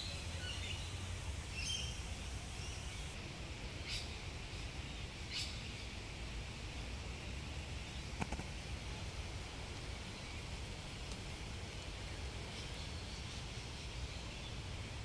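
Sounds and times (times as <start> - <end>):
birds chirping: 0.0 - 3.2.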